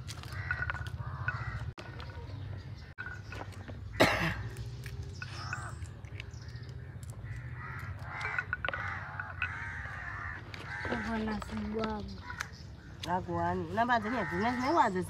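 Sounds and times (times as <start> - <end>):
harsh bird calls: 0.0 - 15.0
pea pods clicking as split: 4.5 - 9.9.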